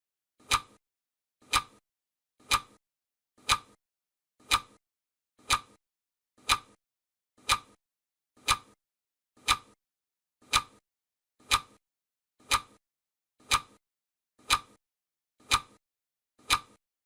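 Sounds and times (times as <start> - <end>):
clock ticking: 0.4 - 0.8, 1.4 - 1.8, 2.4 - 2.8, 3.4 - 3.8, 4.4 - 4.8, 5.4 - 5.8, 6.4 - 6.8, 7.4 - 7.8, 8.4 - 8.8, 9.4 - 9.8, 10.4 - 10.8, 11.4 - 11.8, 12.4 - 12.8, 13.4 - 13.8, 14.4 - 14.8, 15.4 - 15.8, 16.4 - 16.8.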